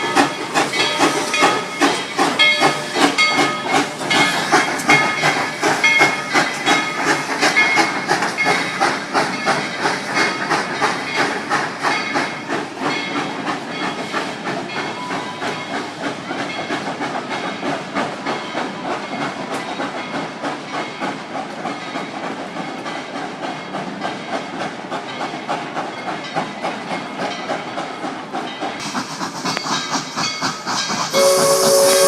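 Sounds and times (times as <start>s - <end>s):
hissing steam: 0.0s - 32.0s
steam locomotive chuffing: 0.0s - 32.0s.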